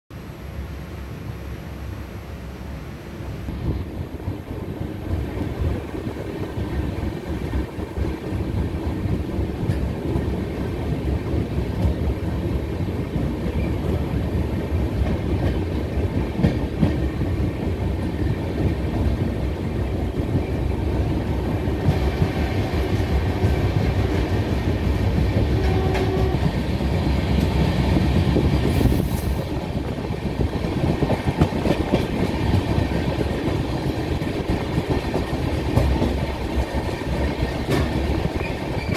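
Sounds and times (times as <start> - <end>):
train rumbling inside carriage: 0.1 - 38.9
wheels clicking over rail joints: 29.6 - 38.9.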